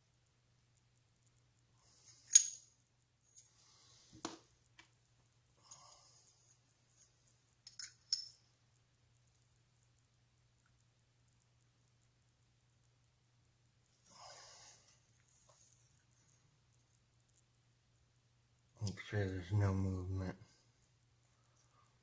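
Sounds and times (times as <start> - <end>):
metal parts clinking: 2.2 - 2.7, 7.6 - 8.4.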